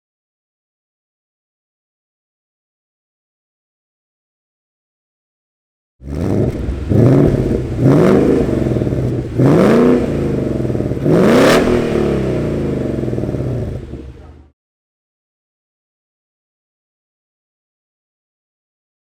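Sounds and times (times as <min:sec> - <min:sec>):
car engine idling and revving: 0:06.0 - 0:14.5.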